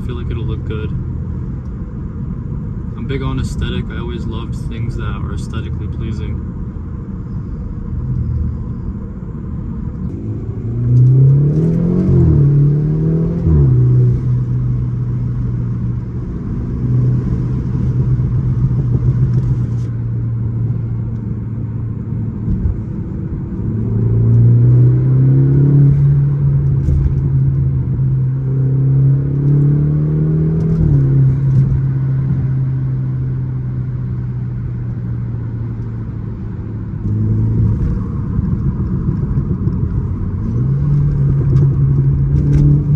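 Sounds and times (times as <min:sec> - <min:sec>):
car engine accelerating: 0:00.0 - 0:42.9.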